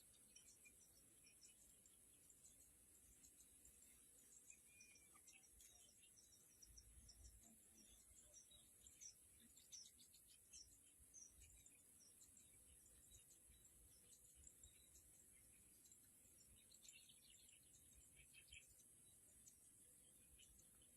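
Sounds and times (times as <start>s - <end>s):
bird chirps: 0.0s - 20.9s.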